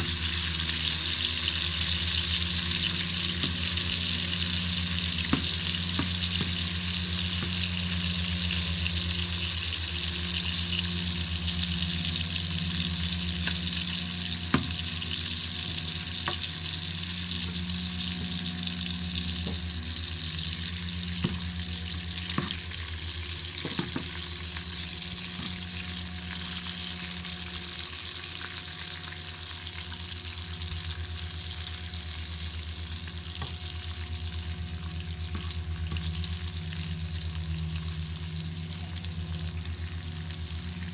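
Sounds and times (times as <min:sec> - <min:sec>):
bacon sizzling: 0:00.0 - 0:40.9
low steady rumble: 0:30.0 - 0:40.9.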